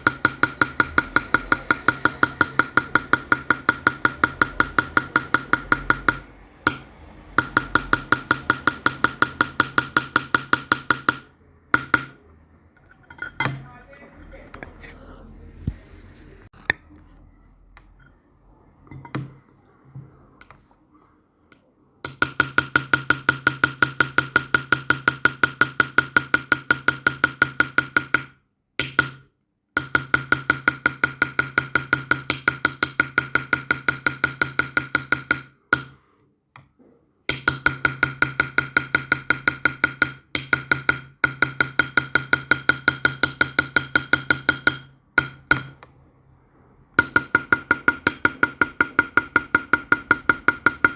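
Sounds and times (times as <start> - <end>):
rapid ringing metal tapping: 47.0 - 50.9.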